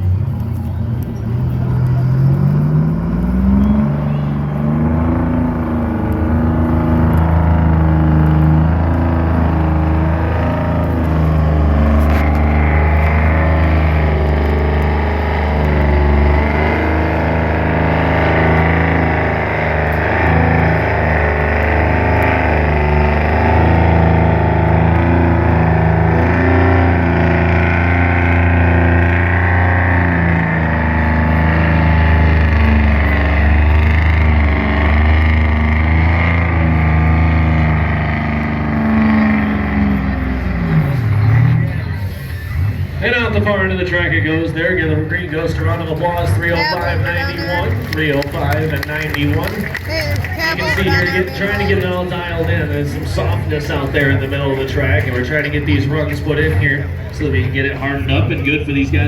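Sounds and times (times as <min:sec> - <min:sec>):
diesel truck engine revving: 0:00.0 - 0:59.0.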